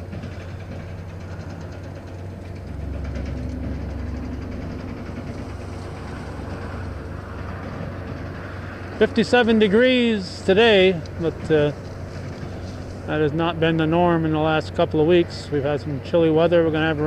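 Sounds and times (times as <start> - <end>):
heavy engine humming: 0.0 - 17.0.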